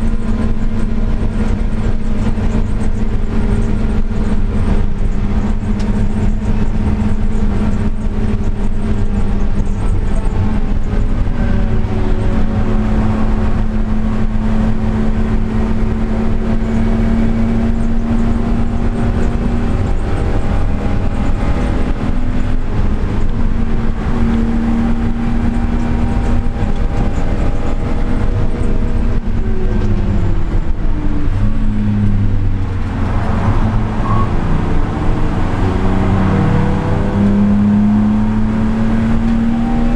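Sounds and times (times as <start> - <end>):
car engine at high revs: 0.0 - 39.9.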